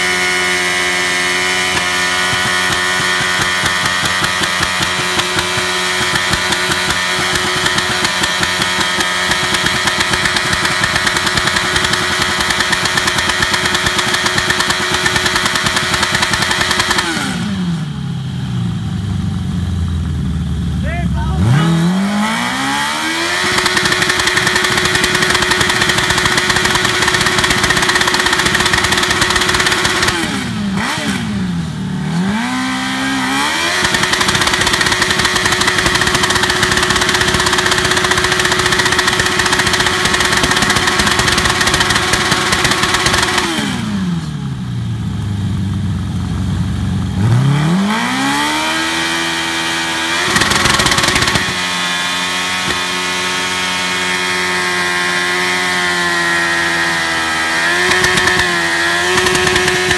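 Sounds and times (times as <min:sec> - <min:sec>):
motorcycle engine revving: 0:00.0 - 0:59.9
tyre spinning on pavement: 0:01.5 - 0:17.0, 0:50.1 - 0:51.6, 0:57.6 - 0:59.9.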